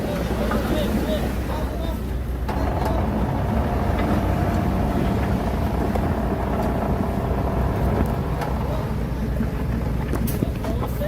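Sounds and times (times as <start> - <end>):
diesel engine droning: 2.2 - 11.0.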